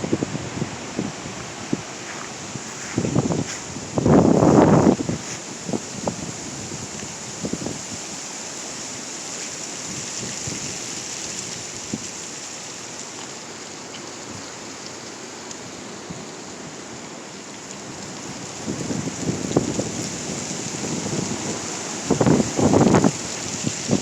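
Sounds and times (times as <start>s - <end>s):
wind knocks on microphone: 0.0s - 6.2s
dry leaves blowing: 0.0s - 24.0s
gusty wind through trees: 0.0s - 24.0s.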